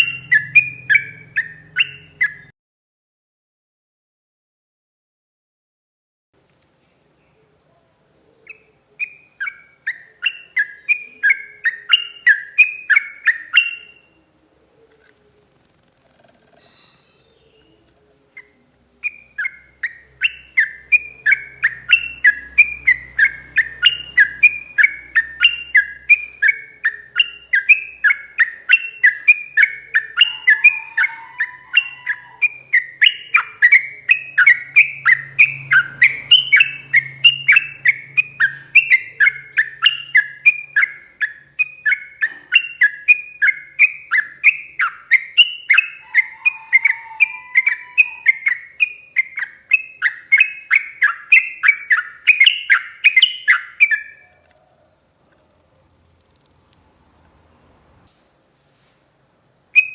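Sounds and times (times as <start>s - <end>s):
bird chirping rapidly: 0.0s - 2.5s, 8.5s - 14.1s, 15.8s - 17.8s, 18.4s - 58.2s.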